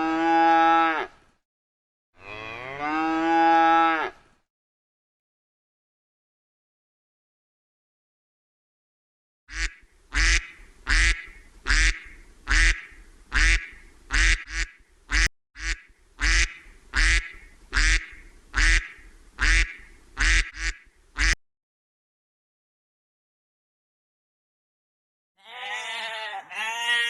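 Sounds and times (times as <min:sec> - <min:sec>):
duck quacking: 0:09.5 - 0:21.4.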